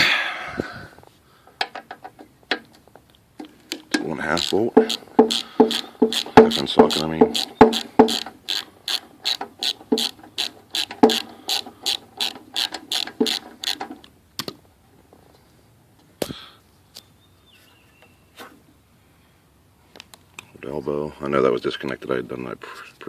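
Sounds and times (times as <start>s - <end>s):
ratchet wrench clicking: 4.4s - 13.9s
knocks: 4.8s - 8.2s.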